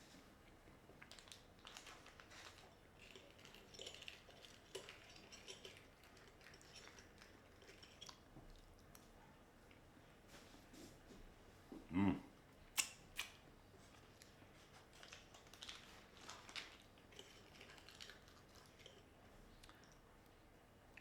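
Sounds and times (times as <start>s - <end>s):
person humming: 11.9s - 12.2s.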